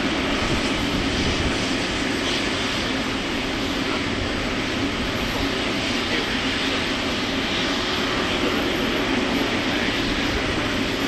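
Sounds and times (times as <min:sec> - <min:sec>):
aircraft engine noise: 0:00.0 - 0:11.0.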